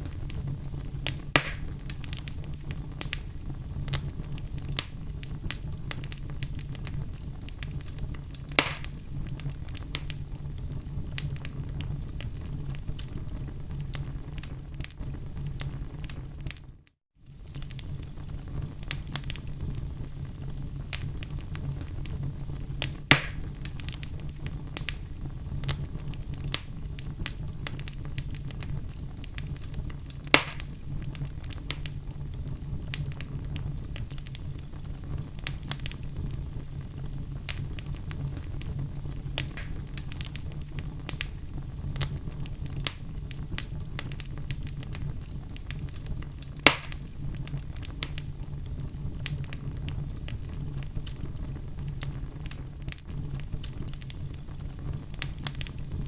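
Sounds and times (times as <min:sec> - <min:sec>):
fire crackling: 0:00.0 - 0:56.0
flames rumbling: 0:00.0 - 0:56.0
wood popping: 0:01.0 - 0:02.2, 0:08.6 - 0:09.0, 0:23.1 - 0:24.0, 0:39.4 - 0:40.3.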